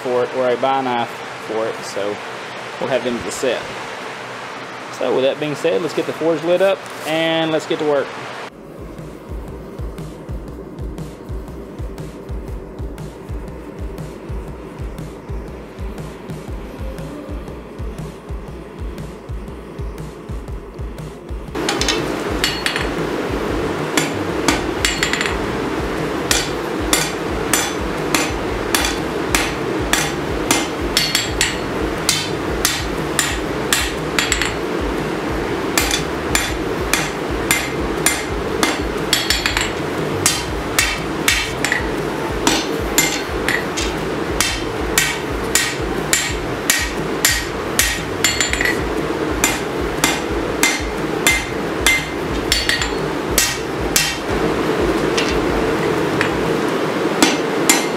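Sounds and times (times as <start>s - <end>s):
constant low hum: 0.0s - 57.9s
hammer striking steel on anvil: 21.6s - 23.0s, 23.9s - 25.5s, 26.2s - 34.7s, 35.7s - 56.4s, 57.2s - 57.9s.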